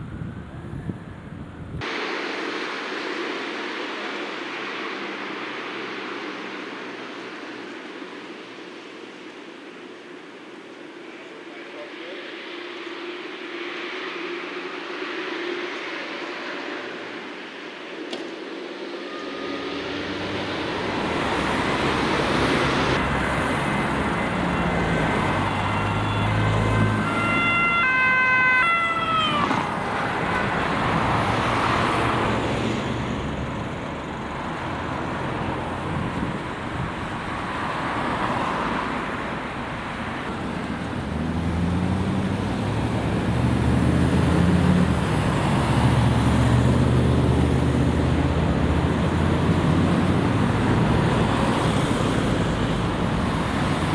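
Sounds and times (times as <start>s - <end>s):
road noise: 0.0s - 53.9s
siren with stepped tones: 14.5s - 35.8s
heavy engine rumble: 15.8s - 27.1s.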